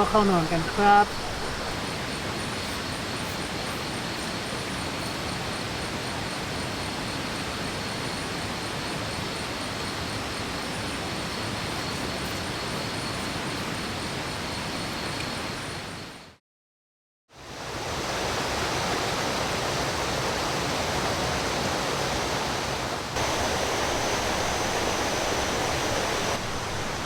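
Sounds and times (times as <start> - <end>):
waterfall and stream rushing: 0.0 - 16.1, 17.4 - 27.0.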